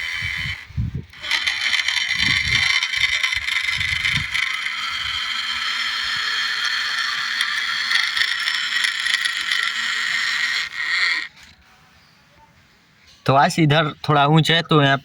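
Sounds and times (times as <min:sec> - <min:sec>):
toy tractor motor whining: 0:00.0 - 0:11.6.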